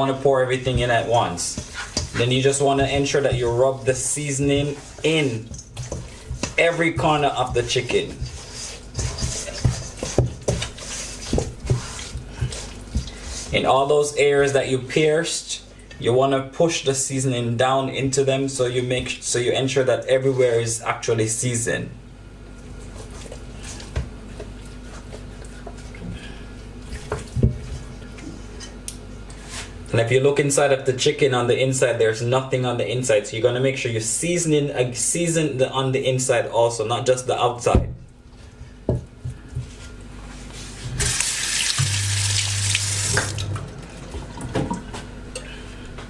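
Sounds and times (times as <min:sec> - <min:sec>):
hands squelching wet paste: 0:00.0 - 0:13.7
kitchen tap running: 0:41.0 - 0:44.9.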